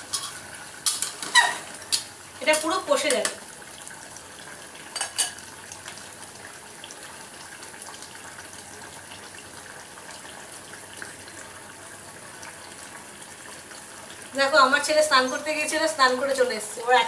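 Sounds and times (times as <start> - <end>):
chicken sizzling in oil: 0.0 - 17.0
metal spatula clinking on pan: 5.0 - 5.4.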